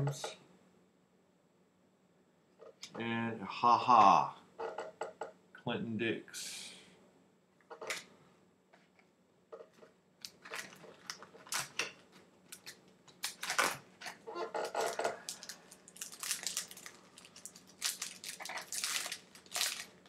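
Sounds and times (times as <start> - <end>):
card pack wrapper crinkling: 10.2 - 11.8, 12.5 - 13.8, 14.6 - 20.0.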